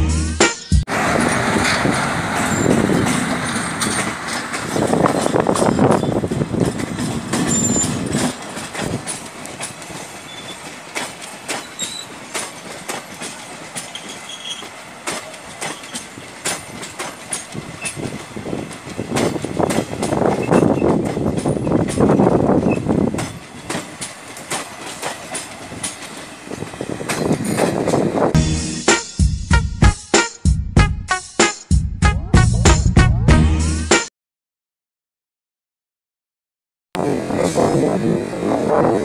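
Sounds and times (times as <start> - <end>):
train coaches rumbling past: 0.7 - 28.4, 37.0 - 39.0
wheels clacking over rail joints: 0.9 - 28.3.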